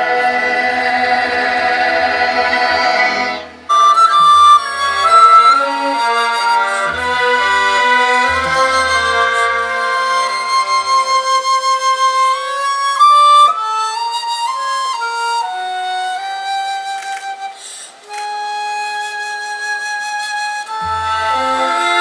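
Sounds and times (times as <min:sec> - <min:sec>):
orchestra sustained notes: 0:00.0 - 0:15.8, 0:20.7 - 0:22.0
flute playing slow melody: 0:03.7 - 0:22.0.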